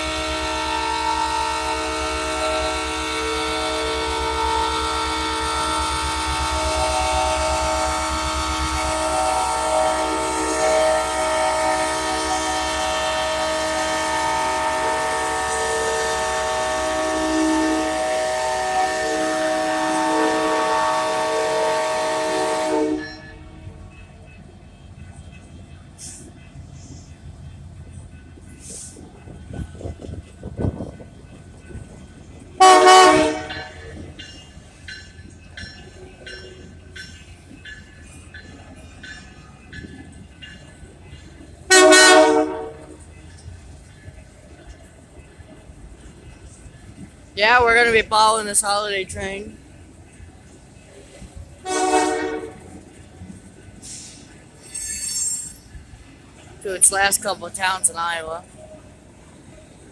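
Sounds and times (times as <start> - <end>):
locomotive horn blast: 0.0 - 23.4, 32.6 - 34.0, 41.7 - 43.1, 51.6 - 52.8
train rumbling past: 0.0 - 59.9.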